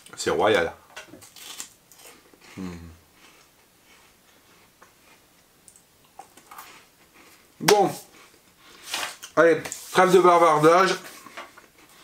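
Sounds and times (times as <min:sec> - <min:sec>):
closed-mouth hum: 0:02.4 - 0:03.7.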